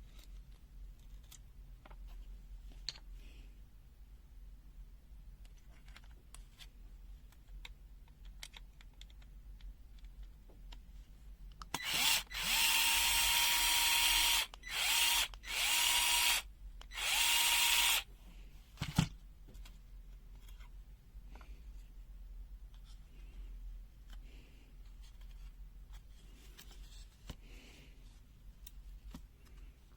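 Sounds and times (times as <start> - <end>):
electric drill motor running: 11.8 - 18.1.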